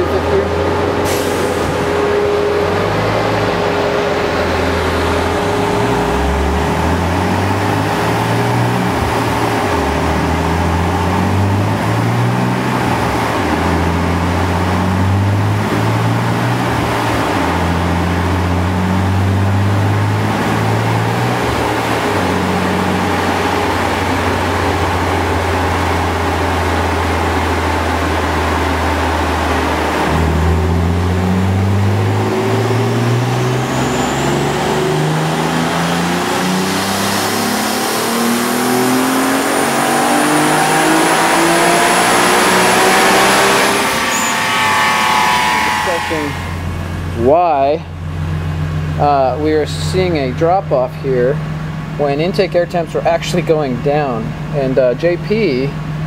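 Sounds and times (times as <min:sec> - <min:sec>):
car engine running on dyno: 0:00.0 - 0:56.0
rush of air: 0:00.8 - 0:06.4.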